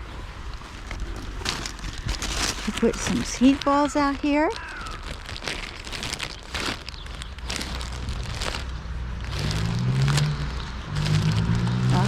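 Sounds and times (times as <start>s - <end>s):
crackles and patter: 0.0s - 12.0s
car engine: 7.8s - 12.0s
rain and wind hiss: 8.1s - 12.0s.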